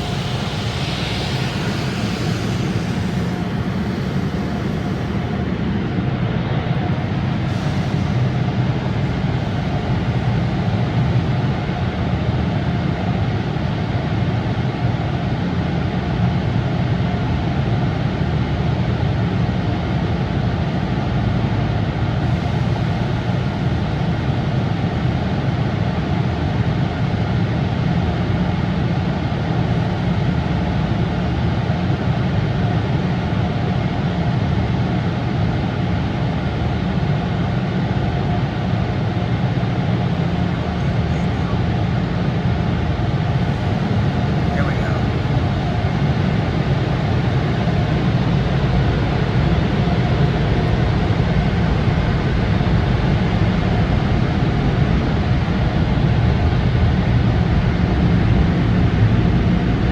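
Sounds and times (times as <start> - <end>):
car wash machinery rushing: 0.0 - 12.5, 39.6 - 59.9
low hum: 0.0 - 13.3, 38.6 - 59.9.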